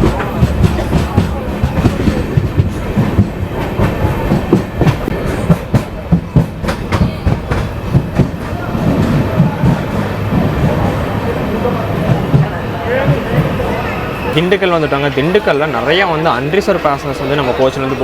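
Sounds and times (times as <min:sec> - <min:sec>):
train wheels clicking over rail joints: 0:00.0 - 0:11.1
train low rumble: 0:00.0 - 0:18.0.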